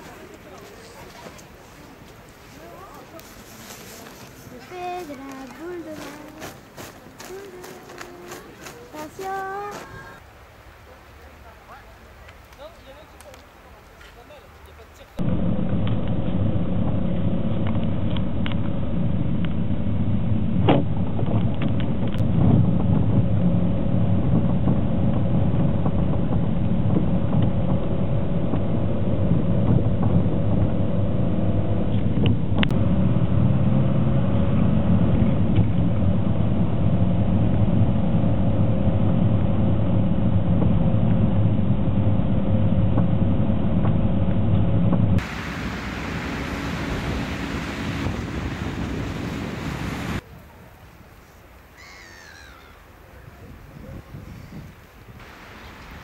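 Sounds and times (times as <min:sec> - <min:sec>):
engine running steadily: 0:15.2 - 0:50.2.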